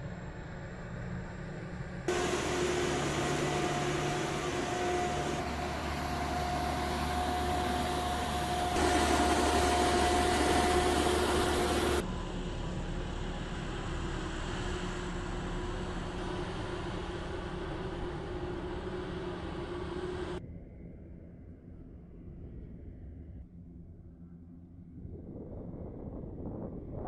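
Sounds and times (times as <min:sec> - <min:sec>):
jet engine with high whine: 0:00.0 - 0:20.4.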